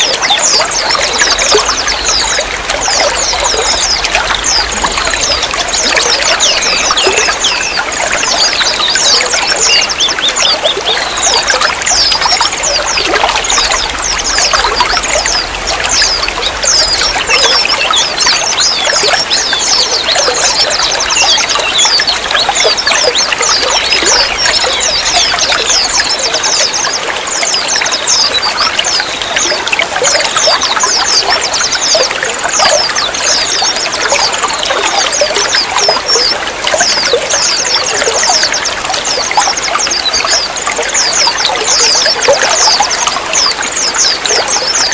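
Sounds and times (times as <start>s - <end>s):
quick high-pitched drips: 0.0s - 44.9s
water trickling and splashing: 0.0s - 44.9s.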